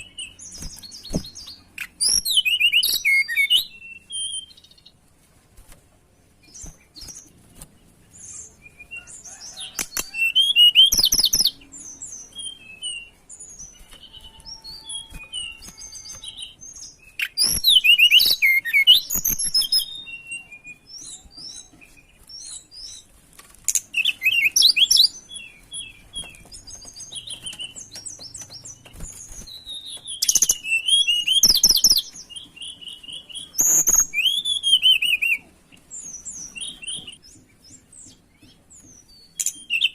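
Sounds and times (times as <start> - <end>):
sharp clicks: 9.8 - 10.1.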